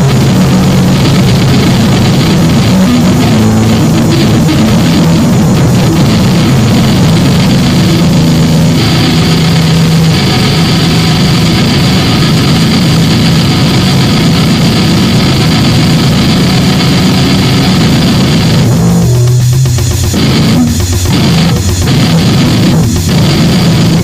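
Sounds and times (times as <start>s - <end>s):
distorted noise drone: 0.0s - 24.0s
steady low hum: 0.0s - 24.0s.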